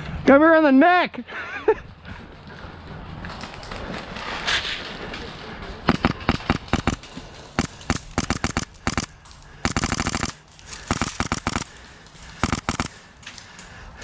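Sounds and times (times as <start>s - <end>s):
airsoft guns firing bursts: 5.9s - 13.1s.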